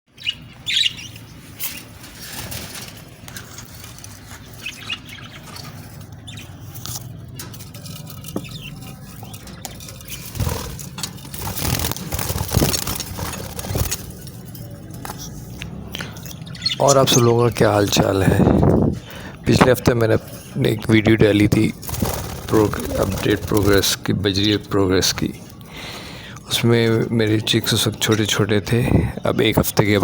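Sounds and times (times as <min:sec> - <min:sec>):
rustling and wing-fluttering: 0:01.4 - 0:15.5, 0:21.8 - 0:23.9
scratching and clicking: 0:05.6 - 0:15.8.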